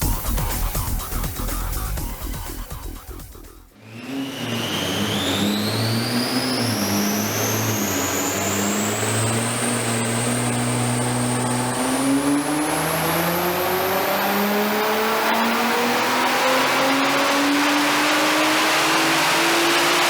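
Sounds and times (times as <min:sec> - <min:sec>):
high whine: 0:03.9 - 0:20.0
car engine under load: 0:04.5 - 0:20.0.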